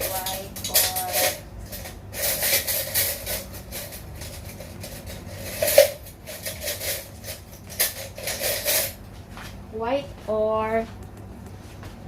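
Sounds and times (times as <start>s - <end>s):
metal spoon scraping and clinking: 0.0s - 9.0s.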